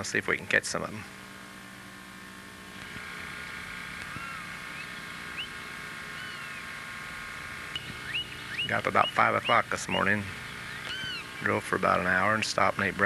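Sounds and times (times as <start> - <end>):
motor engine running: 0.0 - 13.0
short bird chirps: 4.1 - 6.6, 7.8 - 9.6, 10.6 - 11.5.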